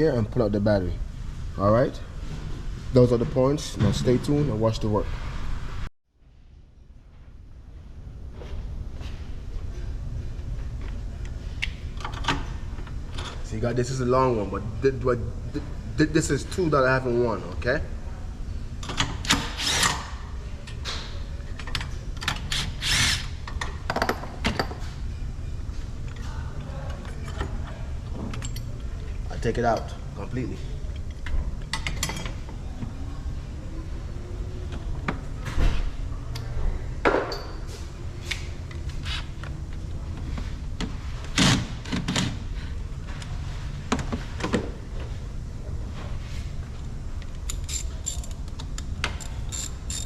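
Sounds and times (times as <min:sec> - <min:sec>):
hand ratchet clicking: 0:47.5 - 0:50.0.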